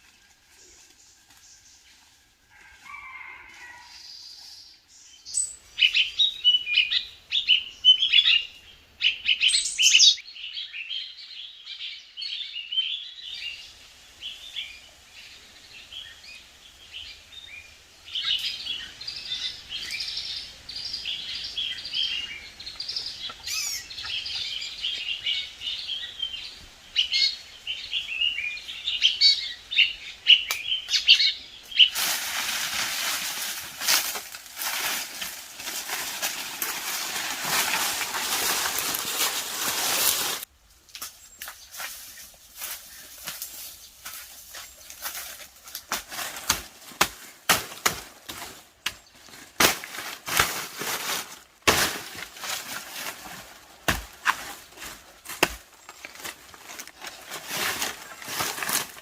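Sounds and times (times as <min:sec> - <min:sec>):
birds chirping: 0:02.9 - 0:32.0.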